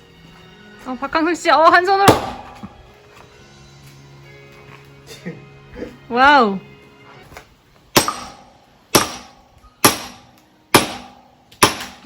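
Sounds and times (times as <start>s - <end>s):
axe chopping log: 2.0s - 2.8s, 8.0s - 12.0s.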